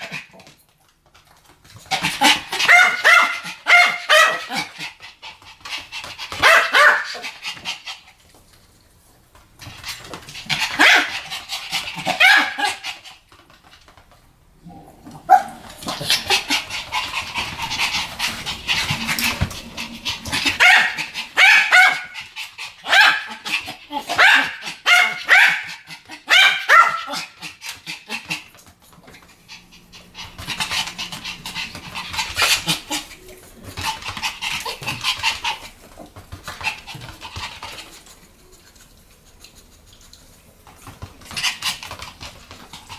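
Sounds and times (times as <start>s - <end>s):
dogs barking in high yaps: 2.2s - 4.7s, 6.4s - 7.2s, 12.1s - 12.8s, 15.3s - 15.7s, 20.4s - 22.2s, 22.8s - 23.4s, 24.0s - 27.4s.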